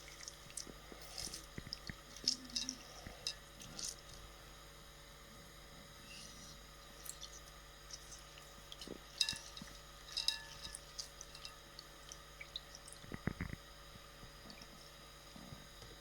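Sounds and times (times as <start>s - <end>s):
juice dripping into a bowl: 0.0s - 4.6s, 6.6s - 16.0s.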